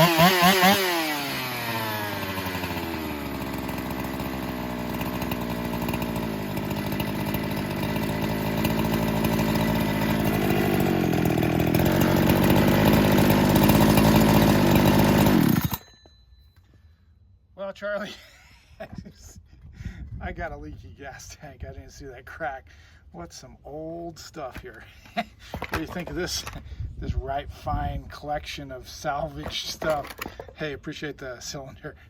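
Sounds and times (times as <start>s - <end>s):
chainsaw idling: 0.0s - 16.0s, 24.8s - 26.6s, 29.2s - 30.6s.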